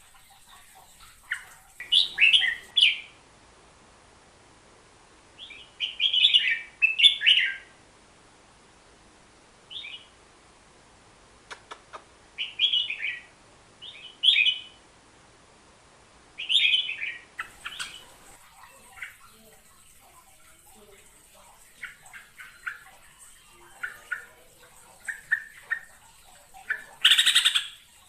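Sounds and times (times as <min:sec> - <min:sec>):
bulbul chirping song: 0:00.2 - 0:03.2, 0:12.4 - 0:14.8, 0:16.4 - 0:28.0.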